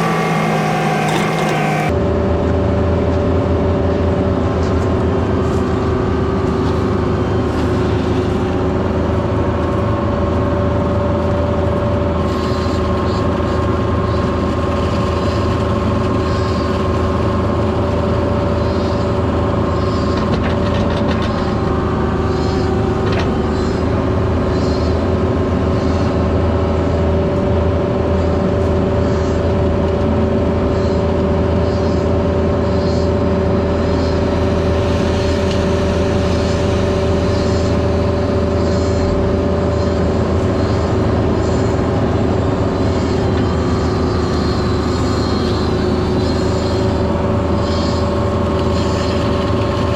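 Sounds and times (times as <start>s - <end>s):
diesel engine running: 0.0s - 49.9s
steady whine: 0.0s - 49.9s.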